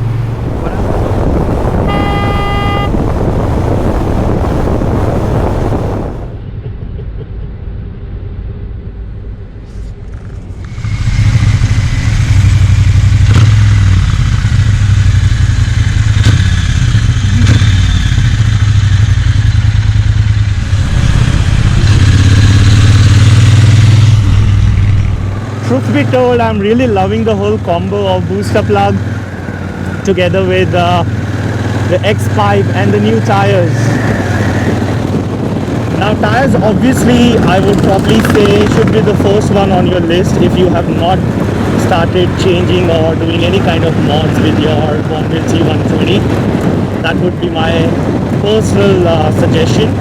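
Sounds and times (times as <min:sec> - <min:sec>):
motorcycle engine on the move: 0:00.0 - 0:50.0
wind and road rush: 0:00.0 - 0:50.0.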